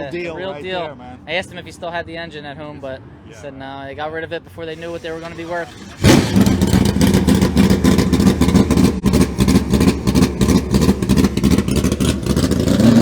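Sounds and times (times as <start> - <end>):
car engine idling: 4.7 - 13.0.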